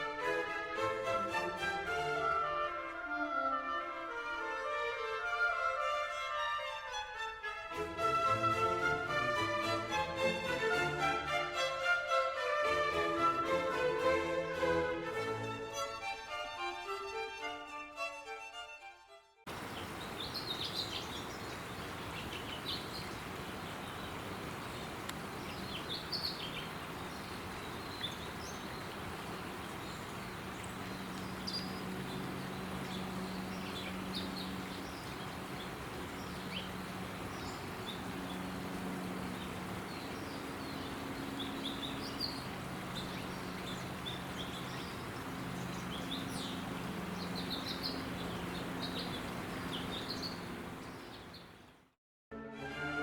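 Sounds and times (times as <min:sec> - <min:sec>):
low hum and hiss: 0:19.5 - 0:51.7
small birds chirping: 0:19.5 - 0:51.8.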